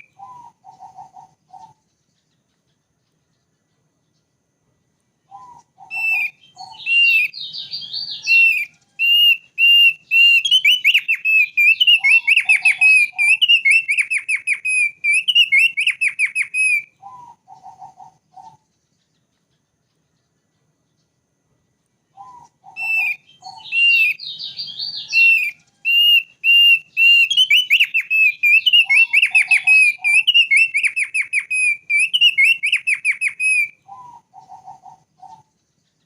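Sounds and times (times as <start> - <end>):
bird whistling and trilling: 0.0 - 1.8, 5.3 - 18.7, 22.1 - 35.5
lower bird chirps: 0.0 - 36.0.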